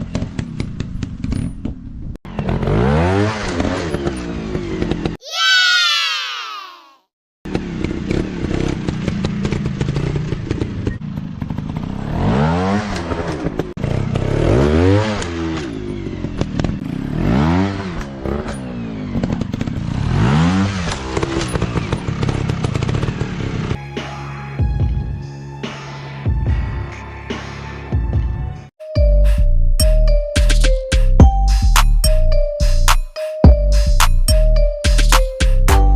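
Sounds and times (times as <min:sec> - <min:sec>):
dirt bike engines revving: 0:07.5 - 0:23.8.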